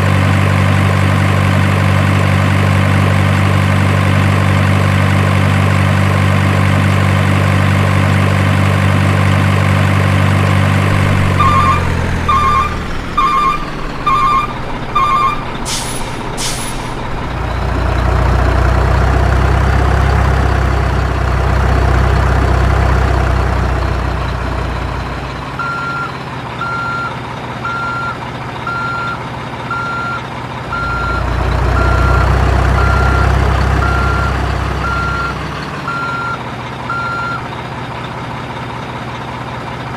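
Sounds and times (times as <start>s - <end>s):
diesel truck engine running: 0.0s - 39.9s
reversing alarm beeping: 11.0s - 17.6s, 25.6s - 37.4s
higher-pitched reversing beeper: 11.2s - 17.0s.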